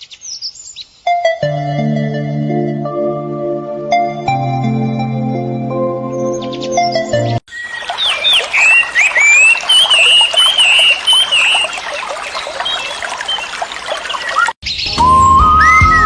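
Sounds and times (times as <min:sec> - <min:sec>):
high chirping calls: 0:06.1 - 0:16.0
water trickling: 0:07.5 - 0:14.6.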